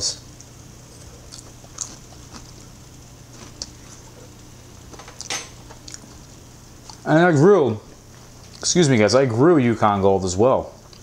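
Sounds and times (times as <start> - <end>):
person chewing food: 0.4 - 7.0, 7.9 - 8.6.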